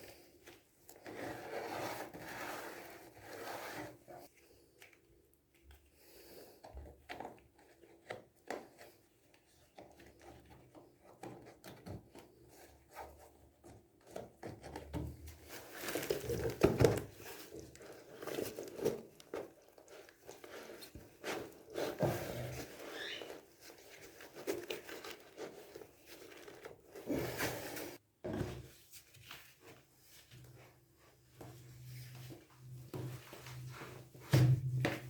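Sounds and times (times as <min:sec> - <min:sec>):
materials knocking and rustling: 0:14.8 - 0:28.7.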